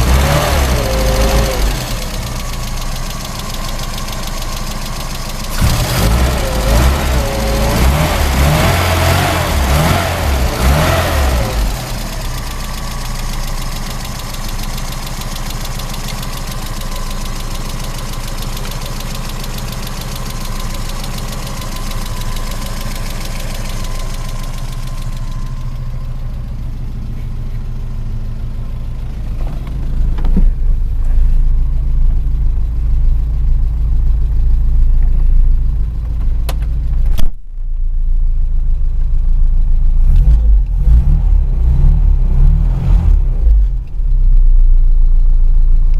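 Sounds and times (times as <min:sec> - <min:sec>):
car engine revving and idling: 0:00.0 - 0:45.9
deep rumble: 0:19.9 - 0:45.9.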